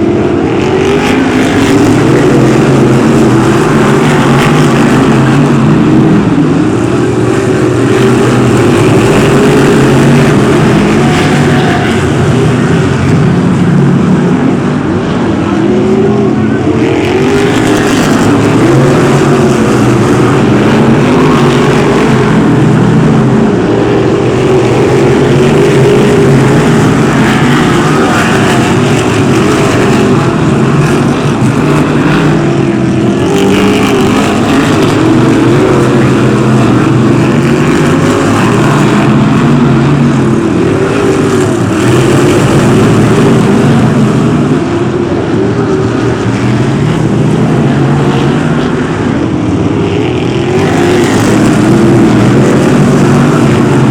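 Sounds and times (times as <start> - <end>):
racing car engines revving: 0.0 - 53.9.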